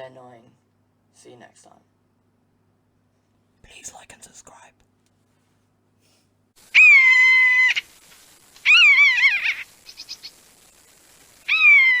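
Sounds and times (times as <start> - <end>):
animal mewing calls: 6.7 - 8.0, 8.6 - 10.3, 11.4 - 12.0.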